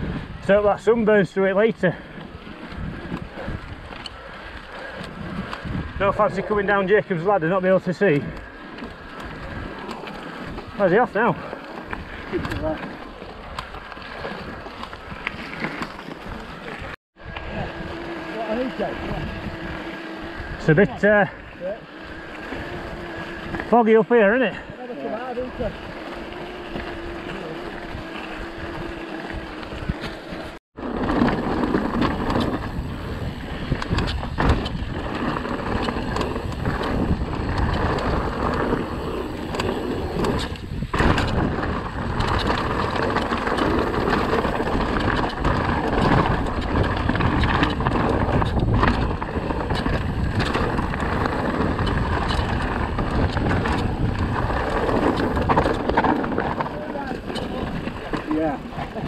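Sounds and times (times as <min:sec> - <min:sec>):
bike rattling over stony ground: 0:00.0 - 0:59.0
tyre and wind noise: 0:00.0 - 0:59.0.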